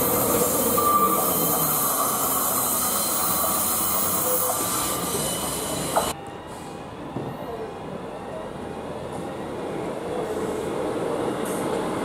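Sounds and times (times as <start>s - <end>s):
train wheel squeals: 0.0s - 7.6s
diesel train running: 0.0s - 12.0s.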